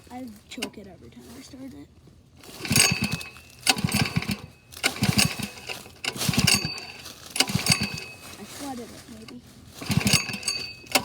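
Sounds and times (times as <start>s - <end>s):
minibike engine turning over: 2.4s - 11.0s.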